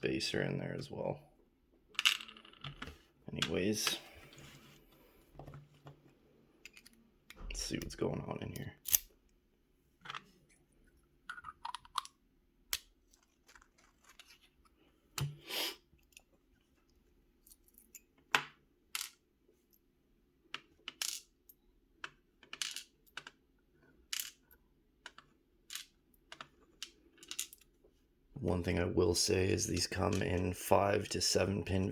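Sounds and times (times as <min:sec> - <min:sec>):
metal lock parts clicking: 0:08.5 - 0:09.1.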